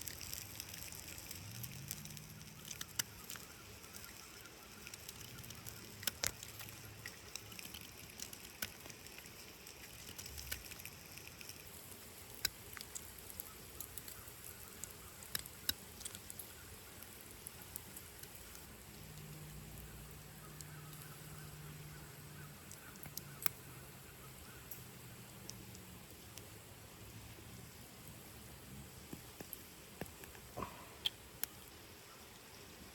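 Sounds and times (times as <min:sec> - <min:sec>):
campfire crackling and popping: 0:00.0 - 0:31.8
faint steady hiss: 0:00.0 - 0:32.9.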